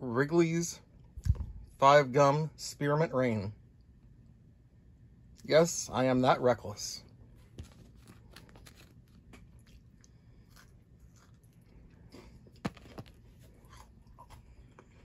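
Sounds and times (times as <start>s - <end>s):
chewing and crunching wafer: 7.4s - 15.0s.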